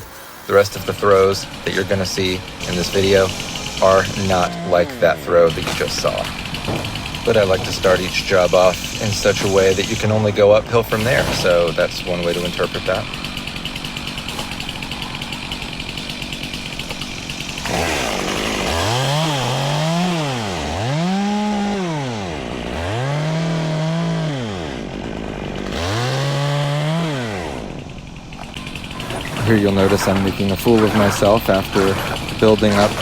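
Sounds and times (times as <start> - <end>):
chainsaw cutting tree limbs: 0.0 - 33.0
engine idling: 0.4 - 19.9, 27.4 - 33.0.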